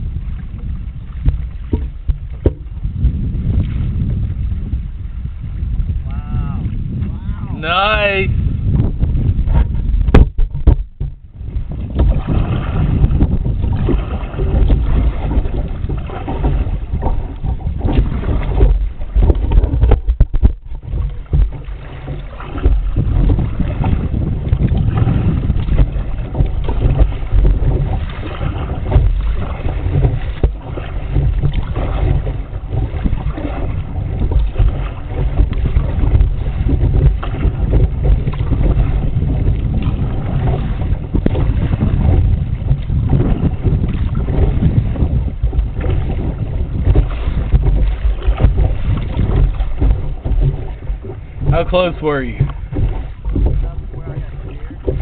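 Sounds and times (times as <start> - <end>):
water splashing around kayak: 0.0 - 55.0
wind buffeting microphone: 0.0 - 55.0.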